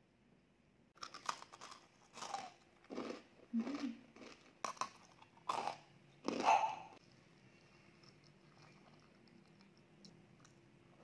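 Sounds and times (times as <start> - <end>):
crunchy chewing: 1.0 - 6.7.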